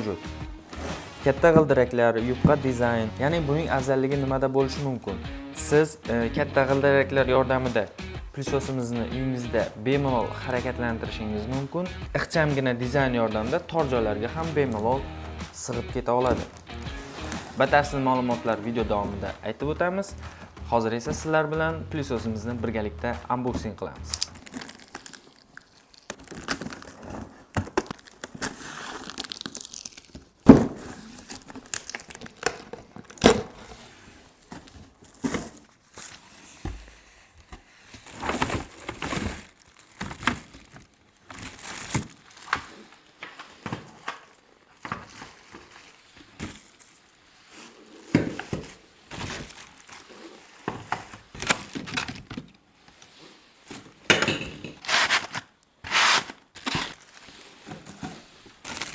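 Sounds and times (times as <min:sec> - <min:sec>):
packaging crinkling and rustling: 0:24.0 - 0:58.9.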